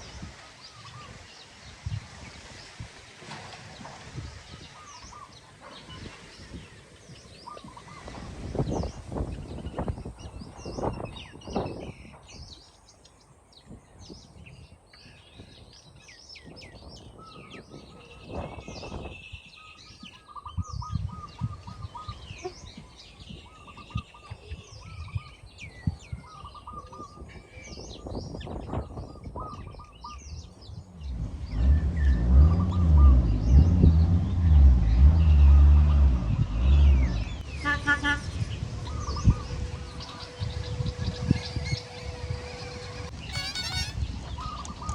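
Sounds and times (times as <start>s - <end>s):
deep engine-like drone: 30.8s - 43.4s
small birds chirping: 43.0s - 44.9s.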